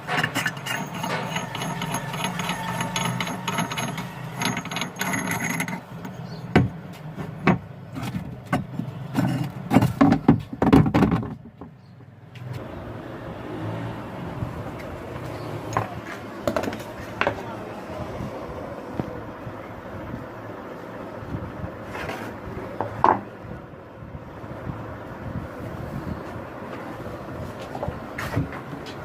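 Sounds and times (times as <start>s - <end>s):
hand tools knocking on metal: 0.0s - 5.8s
mechanical hum with rattling: 0.0s - 29.0s.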